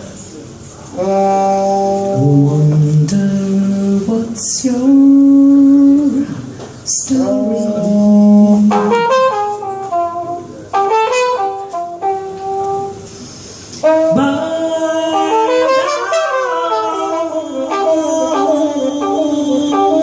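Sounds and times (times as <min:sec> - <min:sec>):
jazz trumpet: 0:01.0 - 0:06.1, 0:06.9 - 0:13.2, 0:13.8 - 0:20.0
band accompaniment: 0:06.9 - 0:13.2, 0:13.8 - 0:20.0.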